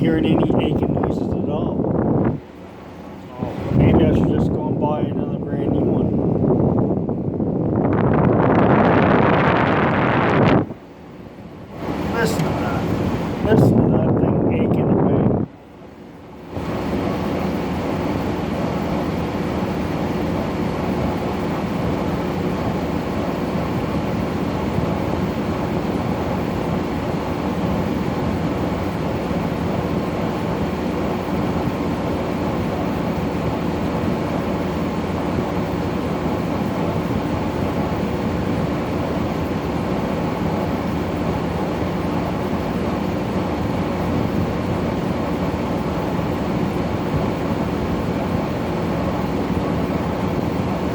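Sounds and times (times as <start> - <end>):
air conditioner blower rushing: 0.0 - 50.9
compressor hum: 0.0 - 50.9.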